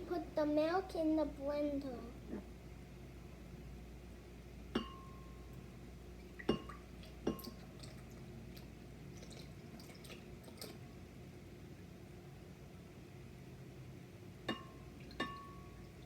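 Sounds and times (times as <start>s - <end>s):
glassware clinking: 4.8s - 5.3s, 14.5s - 15.7s.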